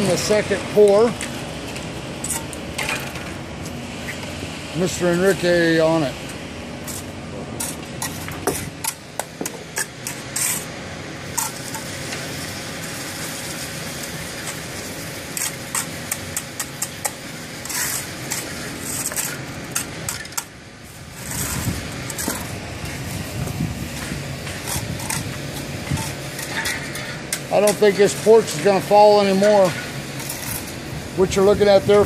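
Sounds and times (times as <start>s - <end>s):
machinery running: 0.0s - 32.0s
sharp clicks and scrapes: 6.8s - 10.7s, 15.3s - 20.5s, 21.2s - 28.6s, 29.8s - 30.8s.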